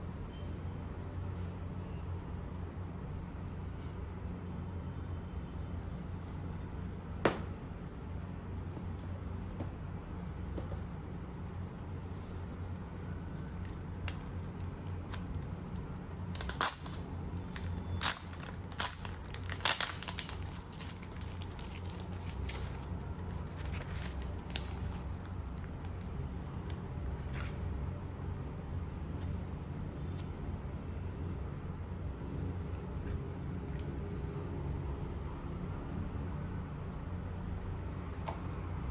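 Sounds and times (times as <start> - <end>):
plastic packaging clicks and crinkles: 15.1 - 25.0.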